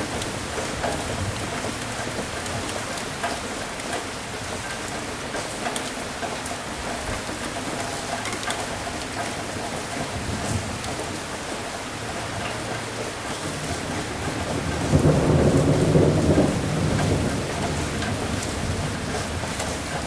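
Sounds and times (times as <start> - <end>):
steady rain: 0.0 - 20.0
thunder rumble: 13.6 - 20.0.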